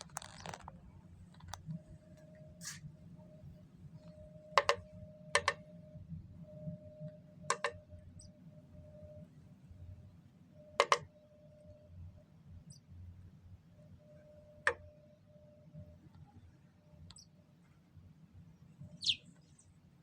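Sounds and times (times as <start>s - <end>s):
faint steady hum: 0.0s - 20.0s
bird pecking on window glass: 7.5s - 7.8s, 10.8s - 11.0s.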